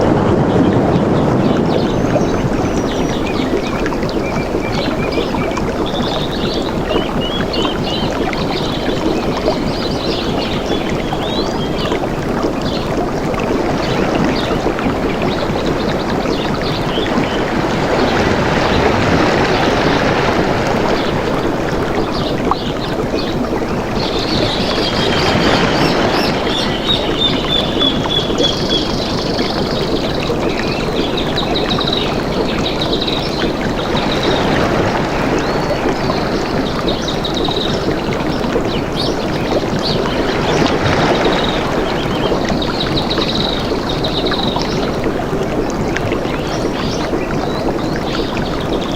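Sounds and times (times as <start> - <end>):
birds chirping: 0.0 - 45.1
flowing water: 0.0 - 48.9
trilled bird calls: 13.6 - 45.0.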